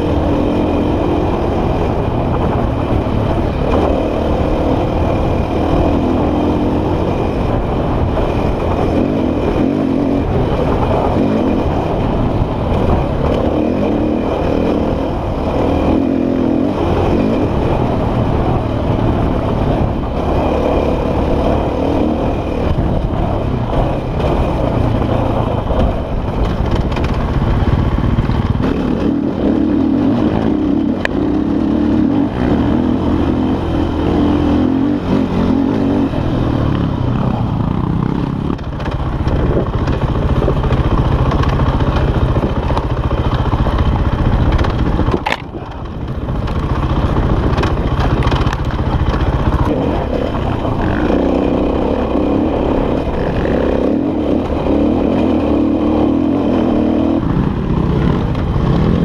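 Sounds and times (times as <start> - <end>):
dirt bike engine revving: 0.0 - 59.0
bike clatter: 40.6 - 49.8.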